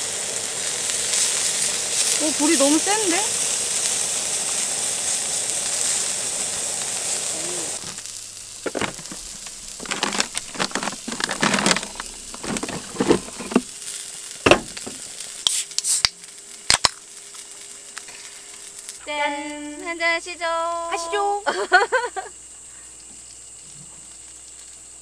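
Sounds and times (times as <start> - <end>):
patties sizzling on griddle: 0.0 - 25.0
beer cans opening: 7.8 - 13.7, 14.4 - 16.1
bottles clinking and packages rustling: 7.8 - 13.7, 14.4 - 15.1.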